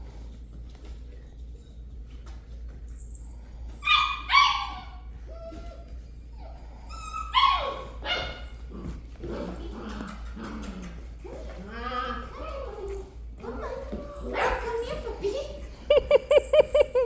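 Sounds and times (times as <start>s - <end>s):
puppy yipping: 3.8s - 8.6s
puppy whimpering: 3.8s - 8.7s, 9.6s - 17.0s.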